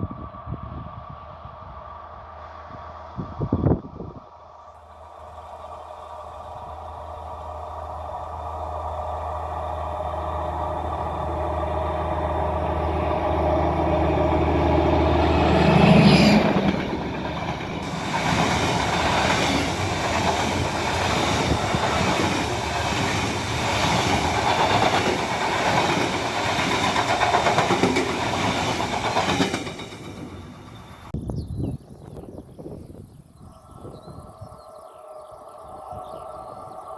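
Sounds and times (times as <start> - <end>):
locomotive drone: 0.0 - 31.2, 33.6 - 36.9
clickety-clack of train wheels: 10.8 - 31.1.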